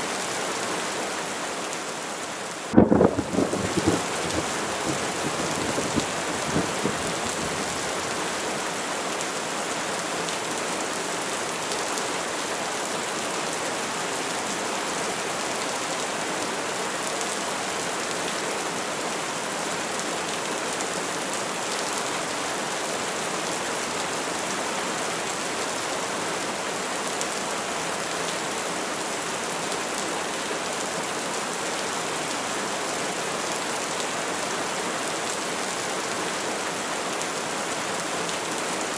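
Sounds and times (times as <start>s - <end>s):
steady rain hissing: 0.0s - 38.9s
thunder rumble: 2.7s - 8.0s.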